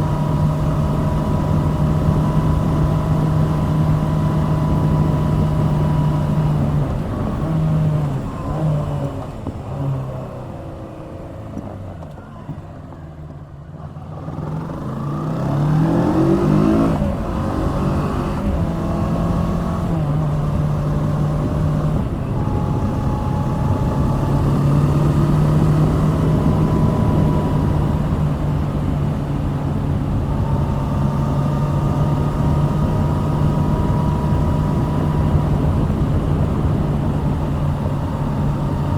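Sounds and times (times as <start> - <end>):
motorcycle engine running: 13.8 - 38.9.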